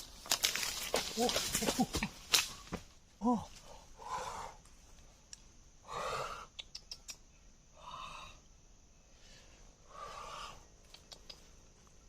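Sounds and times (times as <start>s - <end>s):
faint sharp clicks: 5.3s - 5.5s, 6.5s - 7.2s, 10.8s - 11.6s.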